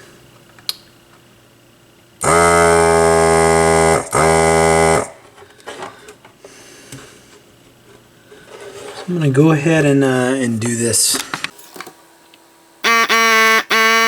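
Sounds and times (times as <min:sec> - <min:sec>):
electric buzzer tone: 0:02.2 - 0:05.2, 0:12.8 - 0:14.0.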